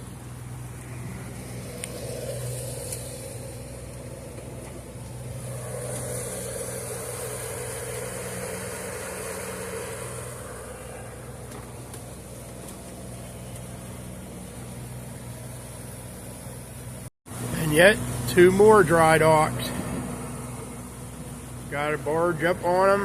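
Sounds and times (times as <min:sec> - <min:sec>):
boat engine humming: 0:00.0 - 0:23.0
steady hiss: 0:00.0 - 0:23.0.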